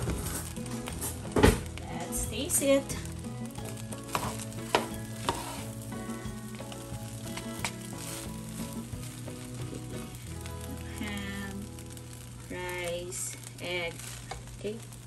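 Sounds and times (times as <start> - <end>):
rice sizzling in a pot: 0.0 - 15.0
utensils clicking against a pot: 3.4 - 5.8
plastic spatula scraping a pot: 4.1 - 5.8, 7.4 - 8.7.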